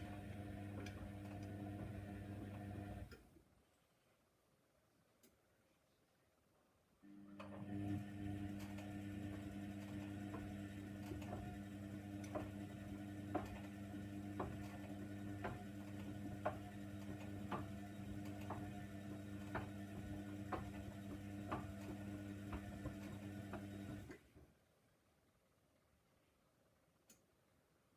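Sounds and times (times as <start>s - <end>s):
washing machine motor hum: 0.0s - 3.2s, 7.1s - 24.3s.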